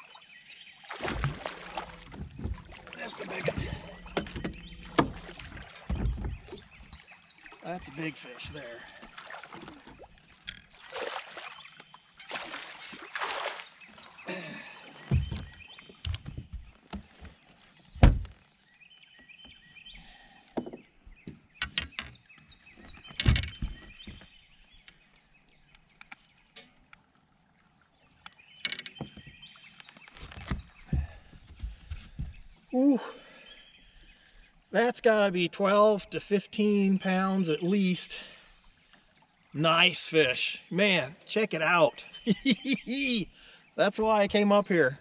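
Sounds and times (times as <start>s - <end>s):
water splashing: 0.0s - 17.2s
birds chirping: 0.0s - 45.0s
knocks against boat: 1.1s - 7.0s, 15.1s - 17.4s, 18.0s - 18.4s, 30.3s - 32.5s.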